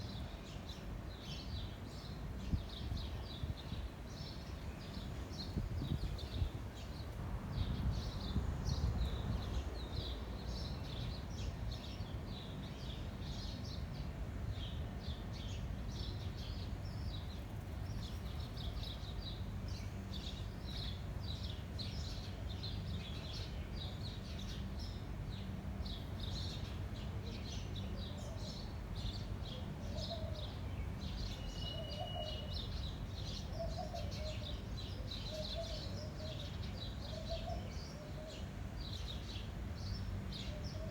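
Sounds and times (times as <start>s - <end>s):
wind rumble on microphone: 2.2s - 11.3s
lower bird call: 31.4s - 32.6s.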